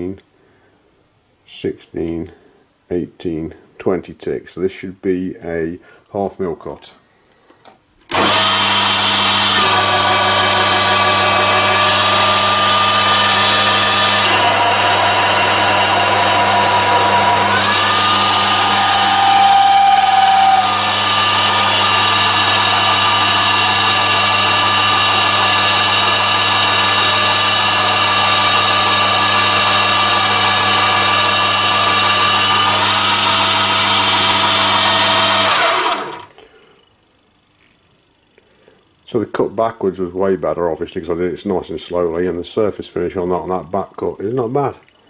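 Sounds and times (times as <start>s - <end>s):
lathe motor and gear whine: 8.1s - 36.3s.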